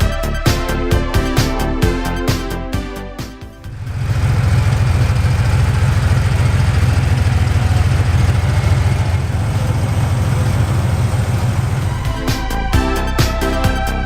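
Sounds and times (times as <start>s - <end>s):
car engine with deep exhaust: 3.6s - 12.2s.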